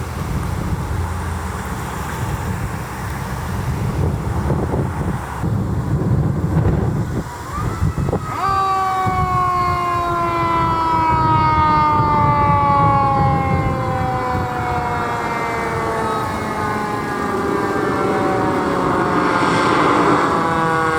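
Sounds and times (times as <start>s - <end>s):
heavy engine rumble: 0.0s - 20.9s
road noise: 0.0s - 20.9s
mechanical siren wailing: 6.9s - 20.9s.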